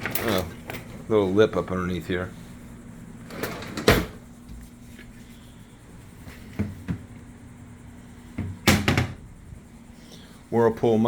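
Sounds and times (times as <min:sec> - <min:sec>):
steady low hum: 0:00.0 - 0:11.0
cabinet doors knocking: 0:08.4 - 0:09.2.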